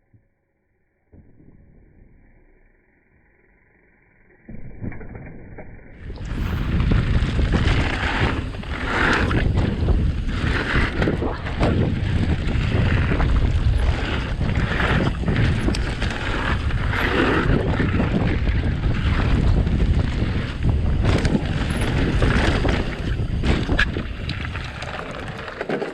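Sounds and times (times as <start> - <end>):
low rumble of bike ride: 0.0 - 25.9
wind buffeting on microphone: 6.0 - 25.6.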